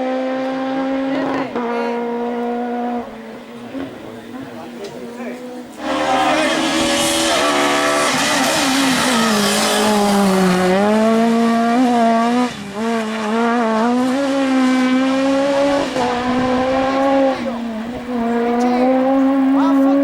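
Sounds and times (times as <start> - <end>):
rally car engine at high revs: 0.0 - 20.0.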